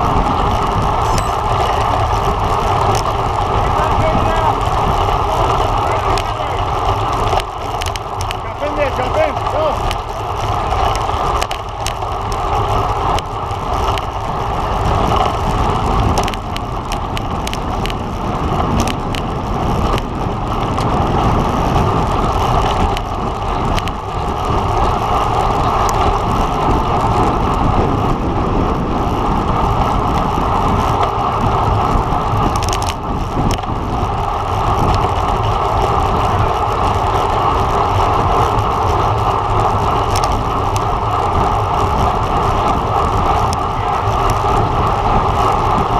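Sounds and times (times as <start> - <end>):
wind rushing: 0.0 - 7.8
bike tyre noise on road: 0.0 - 45.9.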